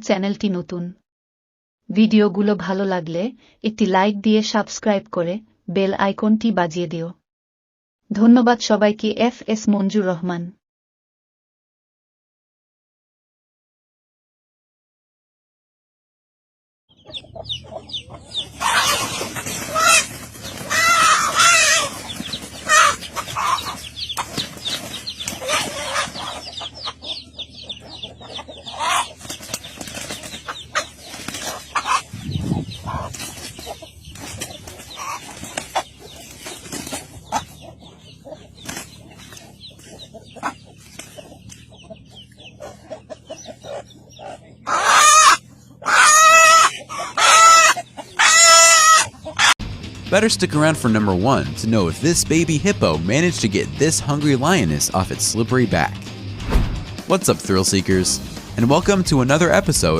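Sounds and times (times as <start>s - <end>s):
chickens clucking and squawking: 16.9s - 49.6s
scuffling: 18.6s - 26.4s, 32.8s - 37.6s.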